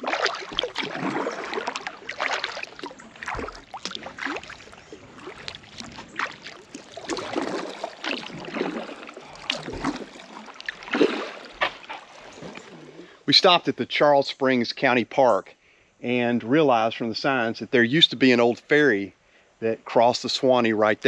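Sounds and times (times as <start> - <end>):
paddle splashing in water: 0.0 - 13.2
water trickling off paddle: 0.0 - 13.2.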